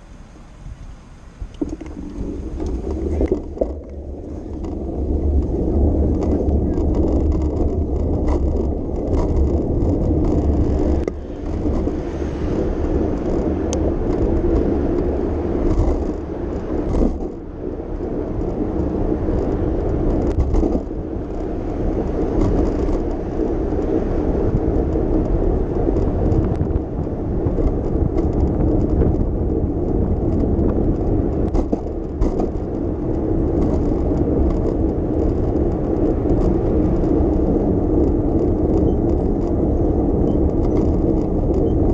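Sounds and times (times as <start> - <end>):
car traffic passing: 0.0 - 17.6
road and wind noise: 0.0 - 41.9
bicycle clicks and rattles: 1.5 - 41.9.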